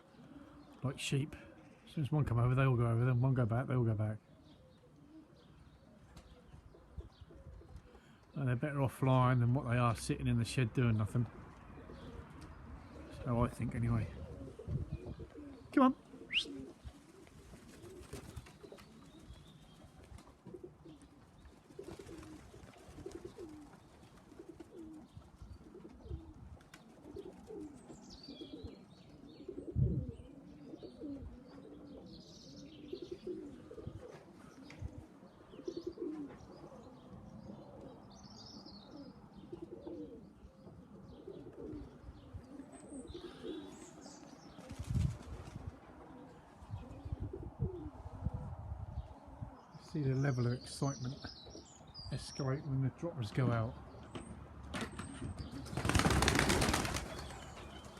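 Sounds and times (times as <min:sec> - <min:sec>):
pigeons cooing: 0:00.0 - 0:08.4, 0:09.3 - 0:57.9.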